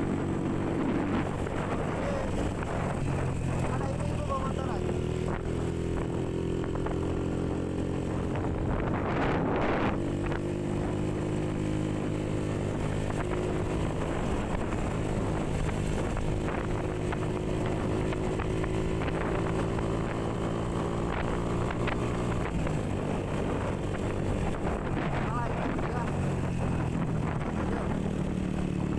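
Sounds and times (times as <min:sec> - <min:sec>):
wind on microphone: 0:00.0 - 0:07.3, 0:08.1 - 0:11.1, 0:13.3 - 0:28.9
motorcycle engine cruising: 0:00.0 - 0:28.9.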